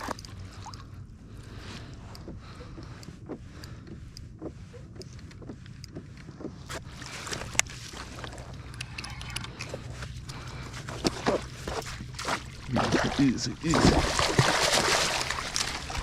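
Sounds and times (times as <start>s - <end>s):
steady low rumble: 0.0s - 16.0s
water splashes around kayak: 10.6s - 16.0s.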